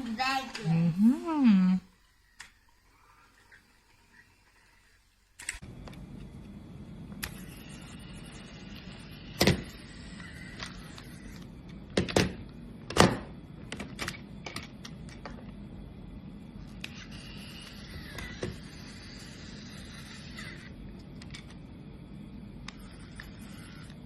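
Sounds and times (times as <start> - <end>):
toy train motor running: 1.9 - 5.6, 7.2 - 11.5, 16.7 - 21.6, 22.7 - 24.0.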